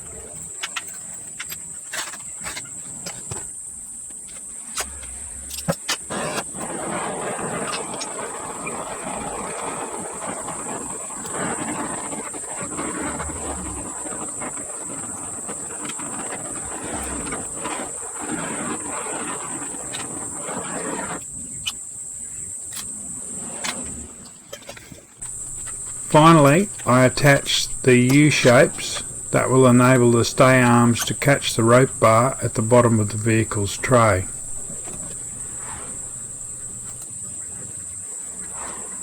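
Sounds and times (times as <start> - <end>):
insect drone: 0.0 - 39.0
torch flame hissing: 4.5 - 21.3, 25.2 - 37.3.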